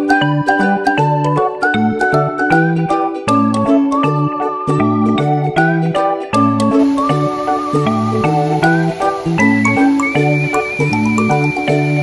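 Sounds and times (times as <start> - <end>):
upbeat background music: 0.0 - 12.0.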